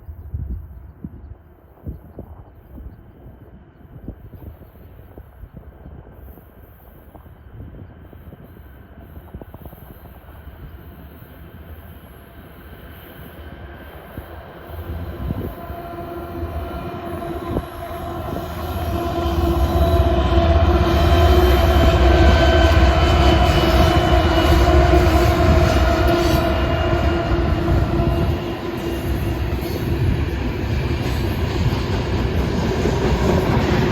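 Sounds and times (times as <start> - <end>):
freight train rumble: 5.7 - 33.9
steady tones: 13.4 - 33.9.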